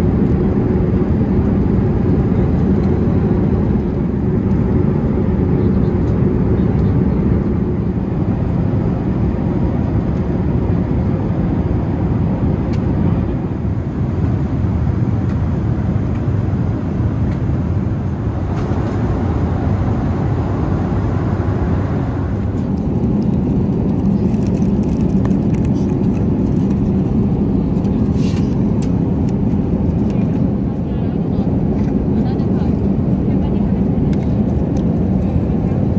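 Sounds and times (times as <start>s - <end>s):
aircraft cabin engine roar: 0.0s - 35.9s.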